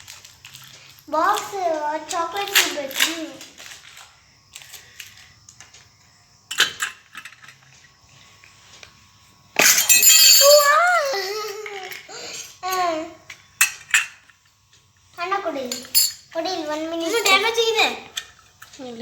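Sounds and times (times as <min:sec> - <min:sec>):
child's high voice: 0:01.1 - 0:03.5, 0:10.4 - 0:13.2, 0:16.4 - 0:18.1.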